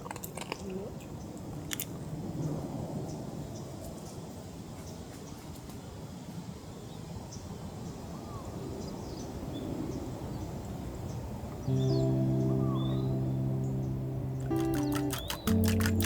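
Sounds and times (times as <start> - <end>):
background music: 11.7 - 16.0.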